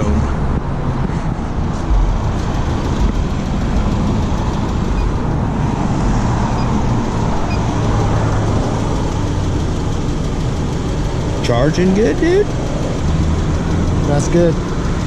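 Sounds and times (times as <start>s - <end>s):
car engine idling: 0.0s - 15.0s
road traffic rumble: 0.0s - 15.0s.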